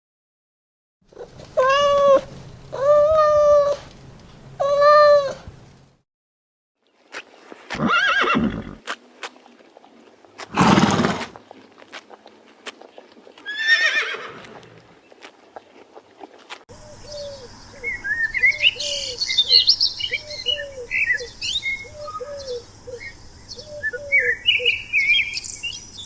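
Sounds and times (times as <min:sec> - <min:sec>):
hoof clicks: 0:07.1 - 0:16.6
horse whinnying: 0:07.7 - 0:08.8, 0:10.5 - 0:11.4, 0:13.4 - 0:14.8
horse snorting: 0:07.7 - 0:08.9, 0:10.4 - 0:16.6.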